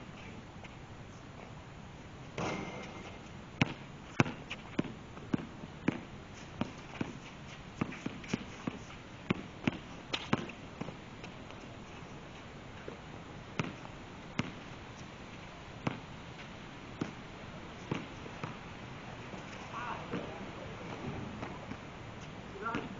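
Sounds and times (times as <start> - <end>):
basketball bouncing on court: 2.4 - 6.7, 13.6 - 13.8, 14.4 - 14.6, 15.8 - 16.0, 22.6 - 22.9.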